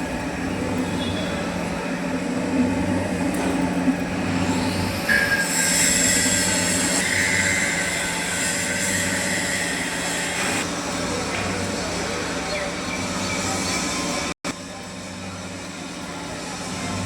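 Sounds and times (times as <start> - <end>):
lathe humming: 0.0 - 17.0
high metallic squeal: 4.3 - 10.6.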